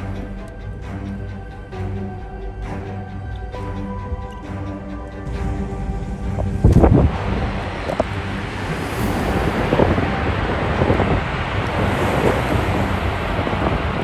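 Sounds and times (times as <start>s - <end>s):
low steady rumble: 0.0s - 14.0s
strong wind buffeting microphone: 5.2s - 14.0s.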